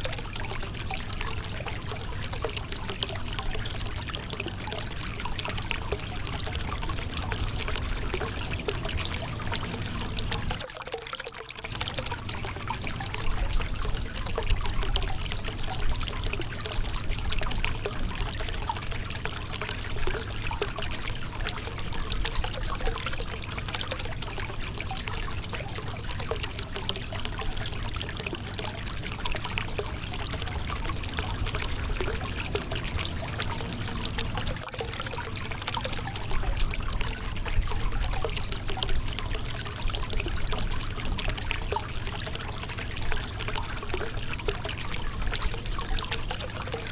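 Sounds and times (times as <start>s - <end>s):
river water splashing over rocks: 25.4s - 38.8s.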